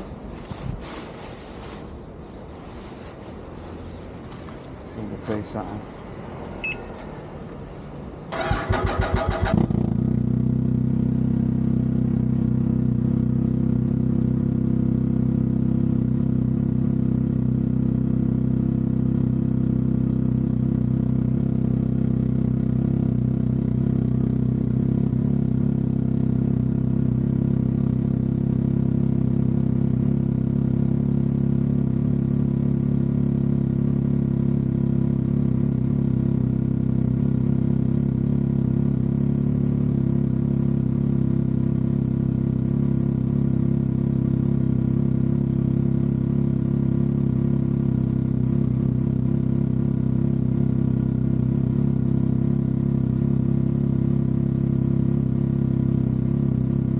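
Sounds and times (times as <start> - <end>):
engine starter cranking: 8.3 - 9.8
engine idling: 8.3 - 56.9.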